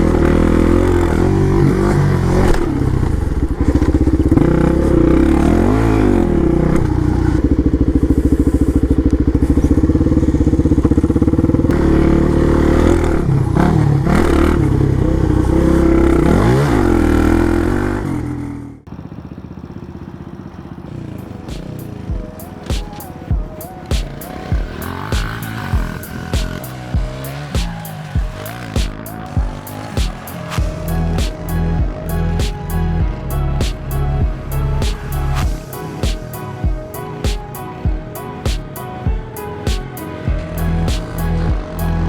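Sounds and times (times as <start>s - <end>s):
dirt bike engine running: 0.0s - 42.0s.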